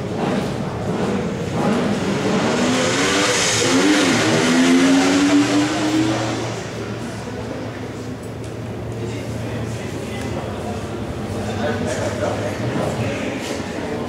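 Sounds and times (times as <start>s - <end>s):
motorcycle engine revving: 0.0s - 6.8s.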